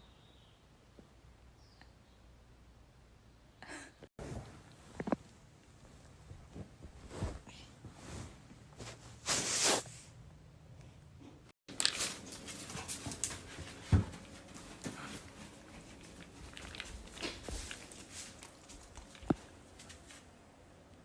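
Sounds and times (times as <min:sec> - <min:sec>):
puppy scuffling and clicking: 0:11.7 - 0:20.4.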